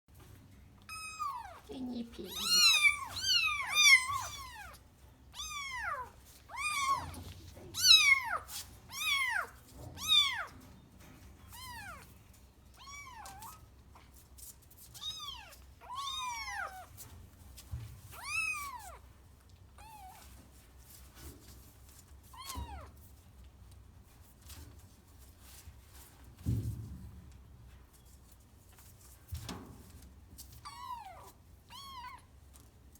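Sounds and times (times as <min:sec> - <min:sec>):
kittens meowing: 0:00.9 - 0:04.8, 0:05.4 - 0:10.5.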